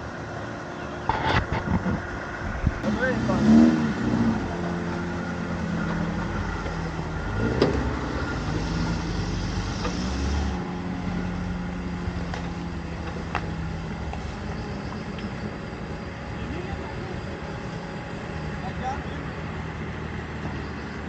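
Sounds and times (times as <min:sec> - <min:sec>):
engine running at low revs: 0:00.0 - 0:21.0.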